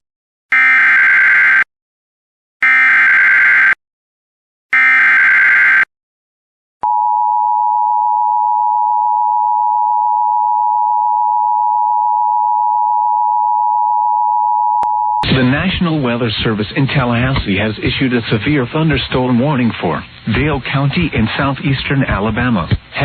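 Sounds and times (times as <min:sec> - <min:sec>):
loud steady alert tone: 0:02.6 - 0:03.8, 0:04.7 - 0:05.9.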